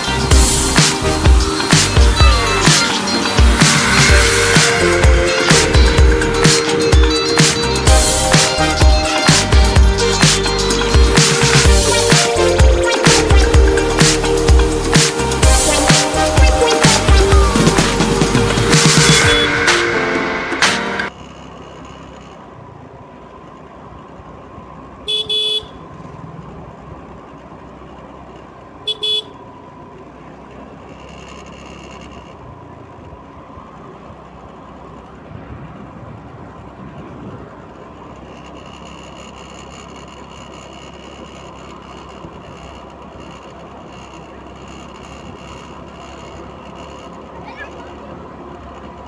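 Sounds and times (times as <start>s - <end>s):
road ambience: 0.0s - 49.0s
vehicle horn honking: 19.0s - 20.1s, 25.0s - 25.9s, 28.8s - 29.5s.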